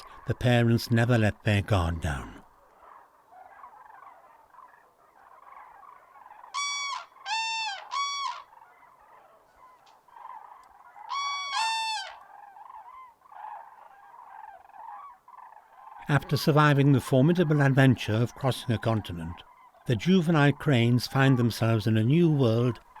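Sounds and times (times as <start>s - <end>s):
faint bird chatter: 0.0s - 23.0s
cranes trumpeting calls: 1.7s - 23.0s.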